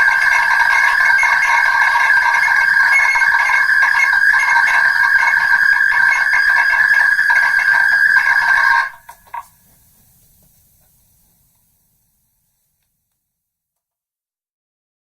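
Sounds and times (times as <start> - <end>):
buzzing ring through megaphone: 0.0 - 9.5.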